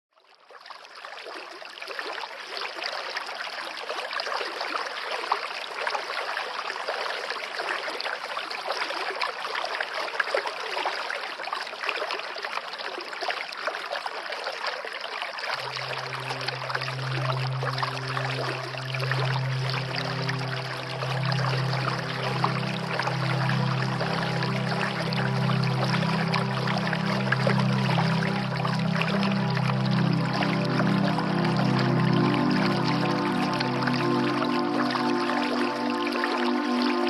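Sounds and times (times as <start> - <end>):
water trickling: 0.3 - 37.0
low held musical tone: 15.6 - 37.0.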